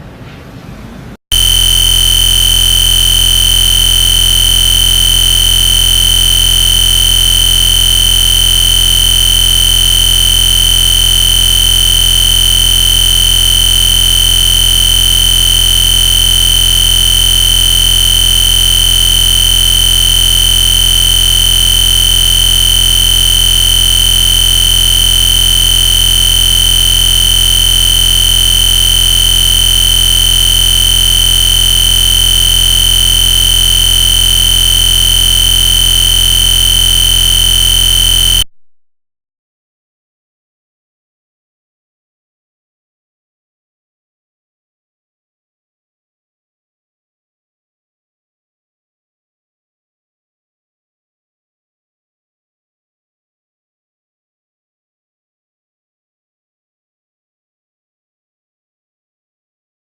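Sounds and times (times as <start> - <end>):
electronic buzz with high tone: 1.3 - 38.5.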